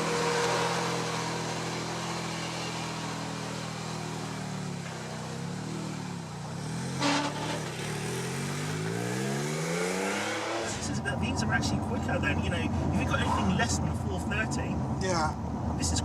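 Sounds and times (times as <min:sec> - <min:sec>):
sports car engine revving: 0:00.0 - 0:11.9.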